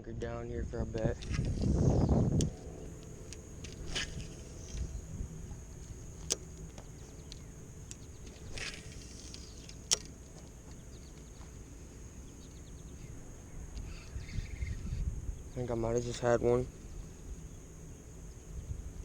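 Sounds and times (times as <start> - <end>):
wind and water rumble: 0.0 - 19.0
high-pitched insect drone: 0.4 - 19.0
short rustle: 0.7 - 15.1
sharp clicks: 0.8 - 14.8.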